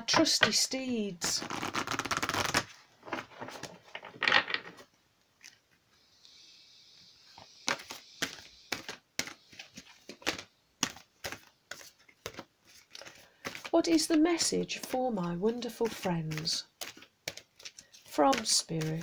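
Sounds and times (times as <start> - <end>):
cards being shuffled: 1.2 - 4.5, 7.4 - 19.0.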